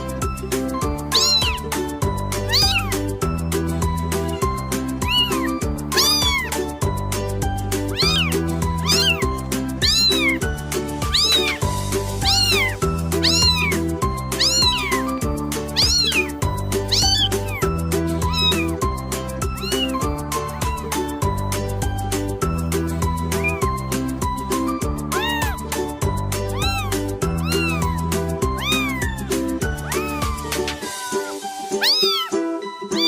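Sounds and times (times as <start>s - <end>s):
background music with beat: 0.0s - 33.0s
cat meowing: 0.9s - 1.8s, 2.4s - 3.2s, 5.0s - 6.8s, 7.8s - 21.0s, 23.4s - 23.7s, 25.0s - 33.0s.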